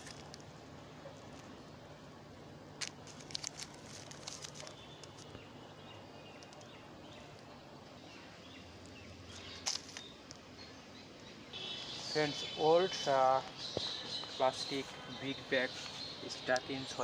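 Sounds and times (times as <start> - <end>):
crackling rustles: 0.0 - 1.8, 2.6 - 5.6, 6.2 - 10.6
faint bird chirps: 4.6 - 17.0.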